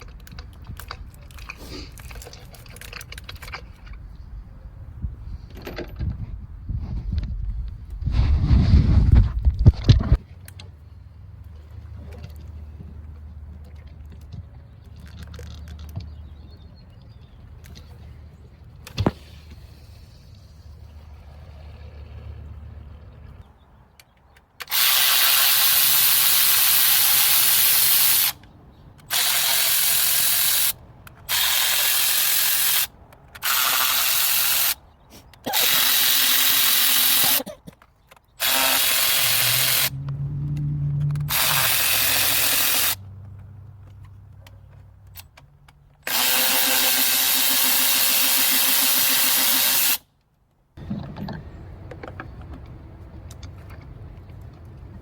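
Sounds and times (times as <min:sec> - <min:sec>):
power tool hissing whir: 0:35.5 - 0:37.4, 0:38.4 - 0:39.9, 0:41.2 - 0:43.0, 0:46.1 - 0:50.0.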